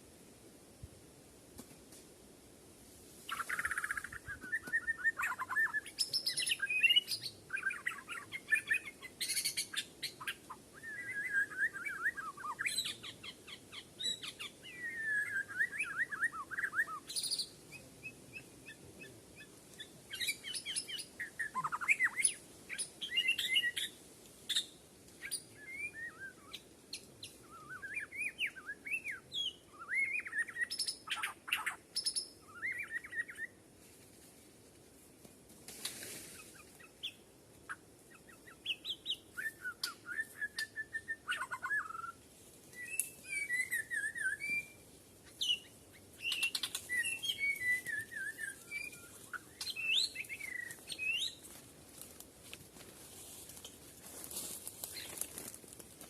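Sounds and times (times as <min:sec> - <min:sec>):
bird singing whistled phrases: 0:03.7 - 0:09.5, 0:10.8 - 0:13.0, 0:14.0 - 0:17.4, 0:25.6 - 0:26.6, 0:27.4 - 0:31.7, 0:38.6 - 0:42.2, 0:42.8 - 0:44.8, 0:45.4 - 0:51.4.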